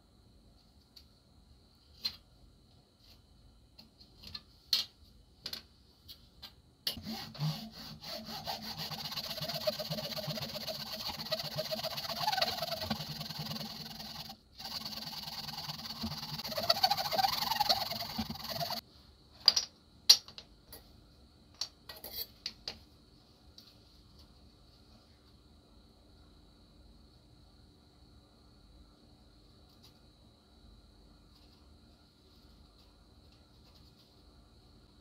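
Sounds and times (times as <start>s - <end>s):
abrasive rubbing on knife metal: 7.0s - 18.8s.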